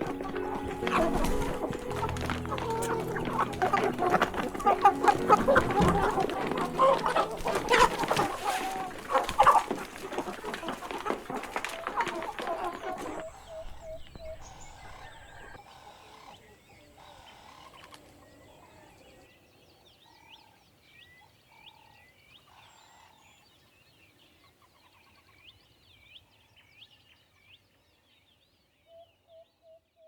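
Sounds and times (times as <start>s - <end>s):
lower poultry calls: 0.0s - 16.1s.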